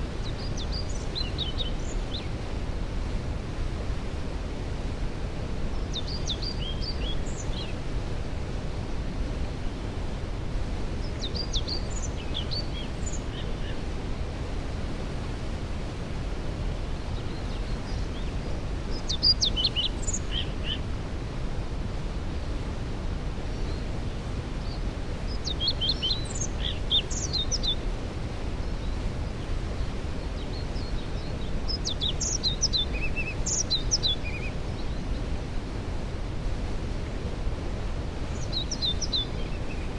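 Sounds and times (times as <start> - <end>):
songbird chirps and trills: 0.0 - 3.2, 4.7 - 10.1, 10.7 - 22.1, 22.7 - 39.9
waterfall rushing: 0.0 - 39.9.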